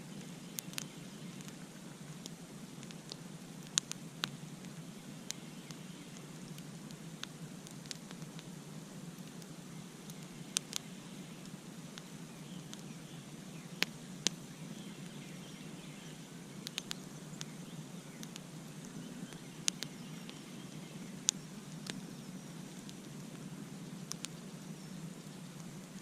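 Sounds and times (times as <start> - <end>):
campfire crackling and popping: 0.1 - 26.0.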